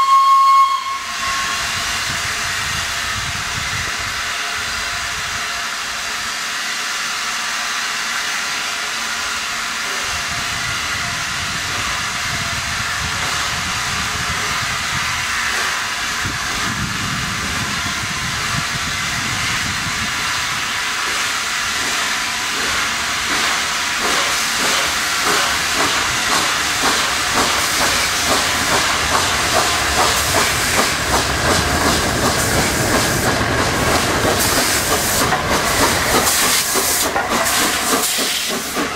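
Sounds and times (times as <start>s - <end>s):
steam locomotive hissing: 0.0s - 38.9s
rhythmic exhaust beats: 21.0s - 38.9s.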